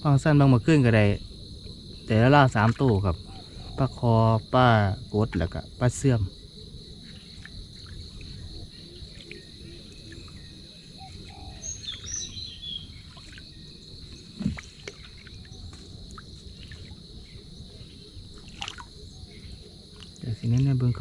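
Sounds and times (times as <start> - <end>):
insect chorus drone: 0.0 - 21.0
bird chirps: 7.1 - 21.0.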